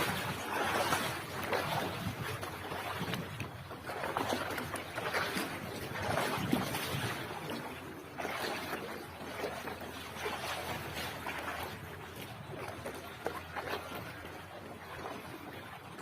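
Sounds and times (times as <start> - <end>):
sea surf washing onto beach: 0.0 - 3.3.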